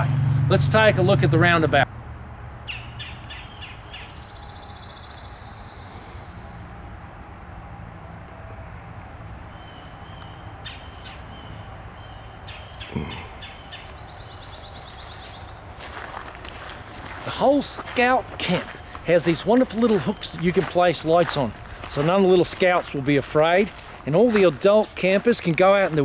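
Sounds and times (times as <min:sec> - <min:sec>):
birds chirping and calling: 0:00.0 - 0:06.9, 0:07.8 - 0:26.0
steady low hum: 0:00.0 - 0:26.0.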